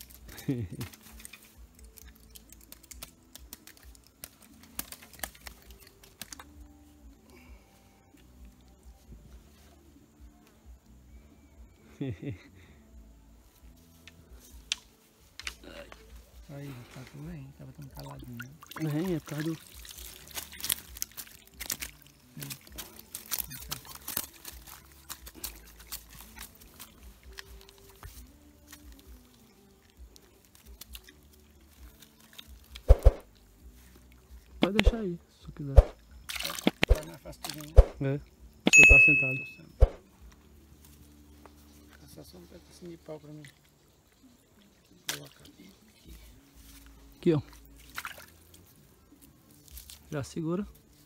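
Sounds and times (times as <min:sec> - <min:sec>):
fishing tackle clicking: 0:00.9 - 0:06.6
clicks and rustles of mesh bag: 0:19.7 - 0:29.4.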